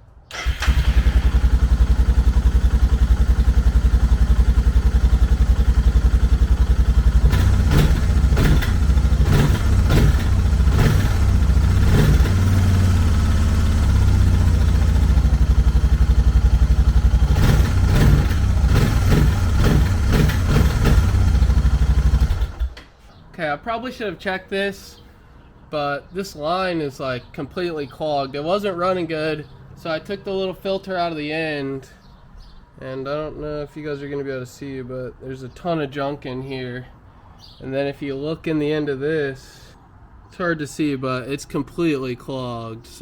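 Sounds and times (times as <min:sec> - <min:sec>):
engine throttle blips: 0:00.3 - 0:22.8
motorcycle engine idling: 0:00.3 - 0:22.8.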